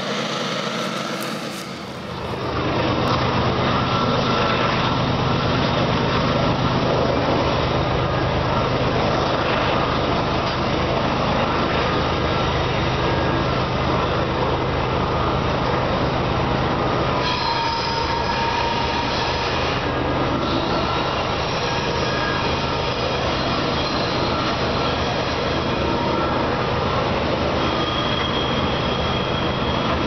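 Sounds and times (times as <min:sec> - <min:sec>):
high wheel squeal: 0:00.0 - 0:02.6, 0:17.2 - 0:30.0
train wheels rumbling on rail: 0:00.0 - 0:30.0.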